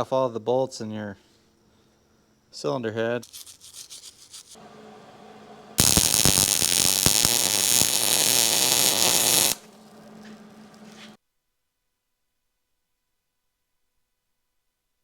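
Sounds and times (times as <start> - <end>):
welding arc crackling and buzzing: 5.8 - 11.2.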